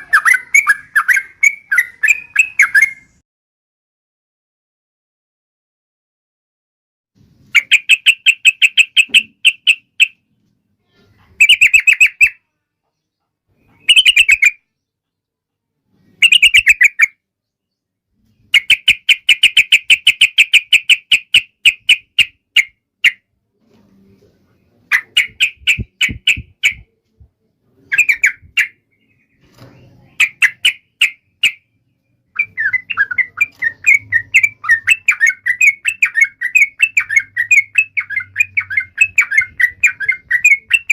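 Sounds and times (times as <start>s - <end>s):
bird calling in rattling notes: 13.6s - 14.6s.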